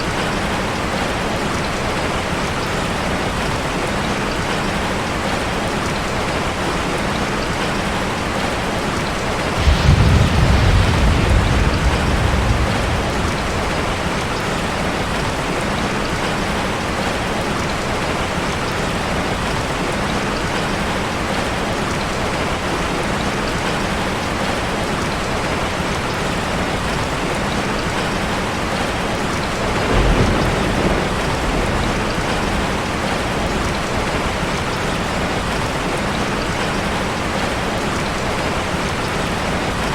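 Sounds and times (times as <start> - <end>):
heavy rain on a car: 0.0 - 39.9
thunder rumbling: 9.4 - 16.8, 28.8 - 35.6.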